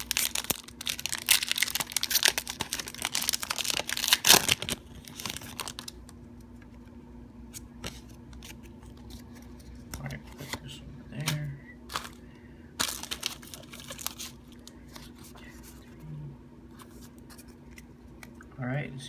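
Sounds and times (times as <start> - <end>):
foil wrapper crinkling and tearing: 0.0 - 6.0, 11.2 - 12.2, 12.8 - 15.2.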